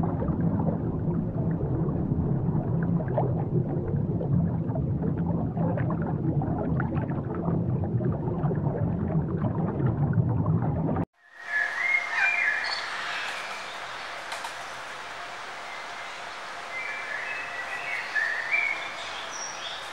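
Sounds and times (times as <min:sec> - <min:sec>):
bubbling water: 0:00.0 - 0:11.1
aquarium low hum: 0:00.0 - 0:19.9
bird calls: 0:11.4 - 0:14.1, 0:16.6 - 0:19.9.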